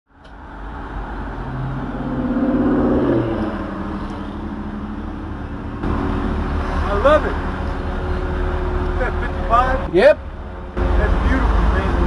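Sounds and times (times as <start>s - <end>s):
passing traffic engine: 0.1s - 12.0s
car engine idling: 3.3s - 12.0s.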